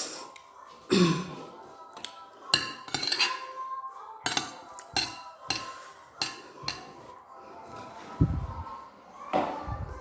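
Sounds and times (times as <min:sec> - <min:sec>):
cutlery clinking on a plate: 0:02.5 - 0:03.6, 0:04.2 - 0:07.1.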